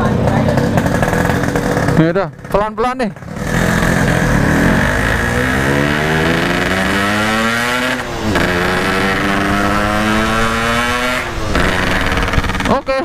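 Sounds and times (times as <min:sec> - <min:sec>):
two-stroke motorcycle engine accelerating: 0:00.0 - 0:13.0.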